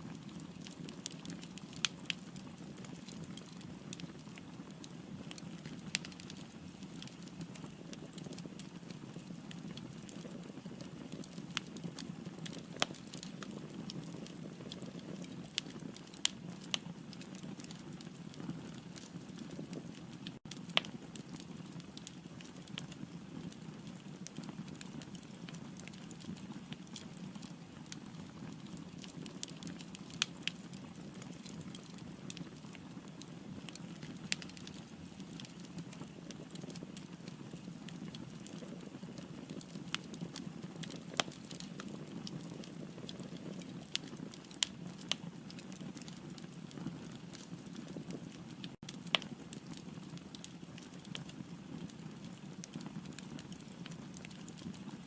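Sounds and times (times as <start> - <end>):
firewood crackles and pops: 0.0 - 55.0.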